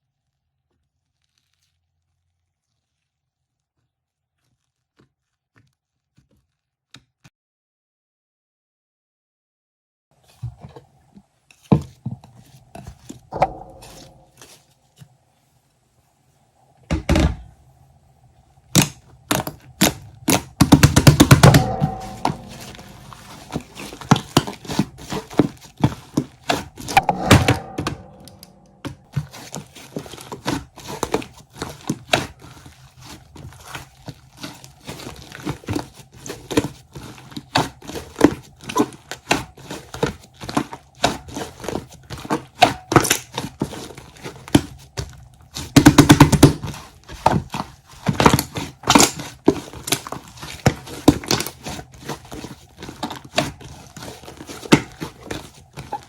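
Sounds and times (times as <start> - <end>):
crinkling and clicks from handling: 31.1 - 56.0.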